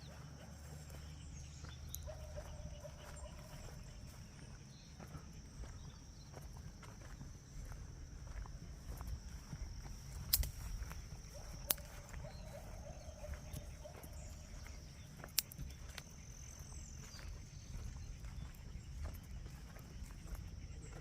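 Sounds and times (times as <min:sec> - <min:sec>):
high-pitched insect trill: 0:00.0 - 0:21.0
sharp clicks: 0:10.2 - 0:10.6.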